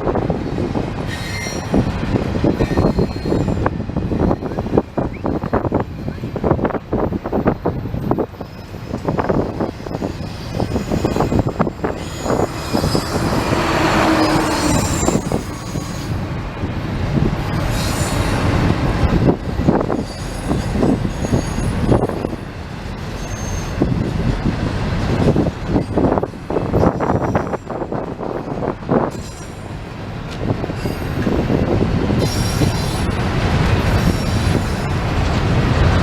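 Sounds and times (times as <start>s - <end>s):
freight train rumbling past: 0.0s - 36.0s
wheels clacking over rail joints: 0.0s - 36.0s
high wheel squeals: 1.0s - 1.9s, 2.5s - 16.3s, 17.5s - 24.0s, 25.3s - 28.3s, 29.0s - 29.8s, 30.8s - 33.2s, 33.8s - 35.0s.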